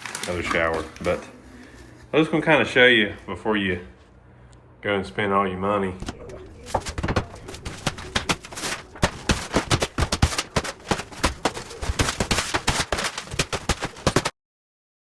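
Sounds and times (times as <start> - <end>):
sharp knocks and clatter: 6.0 - 14.3.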